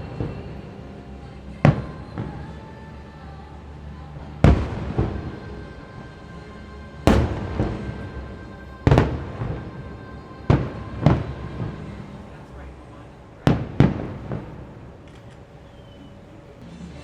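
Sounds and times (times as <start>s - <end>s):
faint music with held notes: 0.0s - 17.0s
fireworks bangs: 7.0s - 12.1s.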